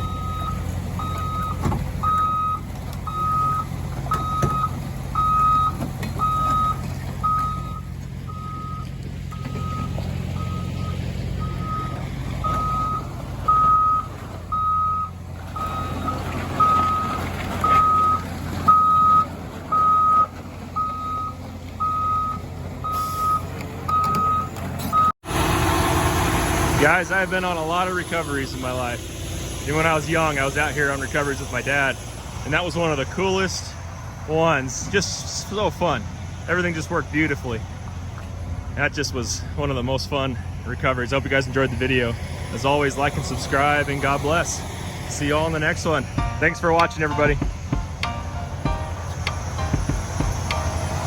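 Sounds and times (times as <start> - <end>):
vehicle backup alarm beeping: 0.0 - 25.2, 44.0 - 51.0
diesel engine running: 0.0 - 51.0.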